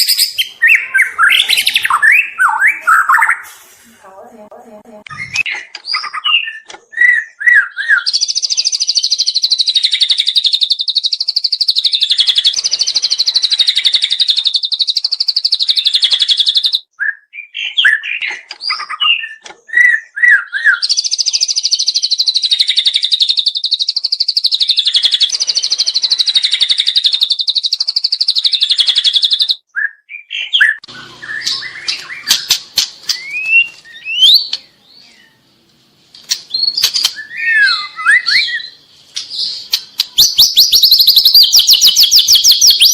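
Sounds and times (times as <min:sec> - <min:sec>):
bird singing fast trills: 0:00.0 - 0:03.4, 0:05.1 - 0:35.4, 0:36.3 - 0:42.9
bird chirps and rising whistles: 0:36.5 - 0:38.8, 0:39.4 - 0:42.9.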